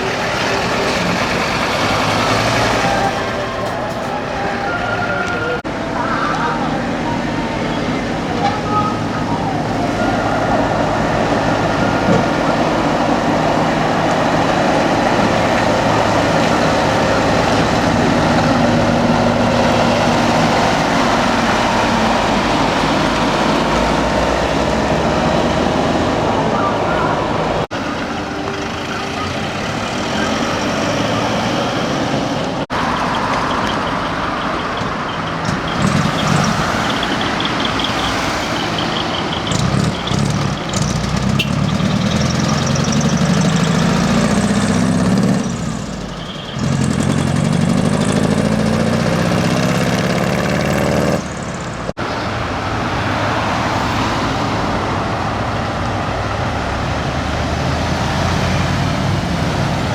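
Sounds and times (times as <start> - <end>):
heavy truck engines rumbling: 0.0 - 59.9
road noise: 0.0 - 59.9.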